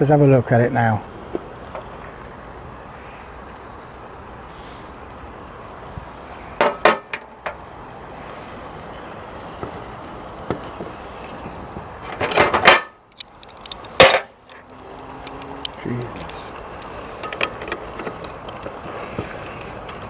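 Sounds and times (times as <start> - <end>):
steady hiss: 0.0 - 12.4
utensil and lid clinking on pot: 12.6 - 15.8.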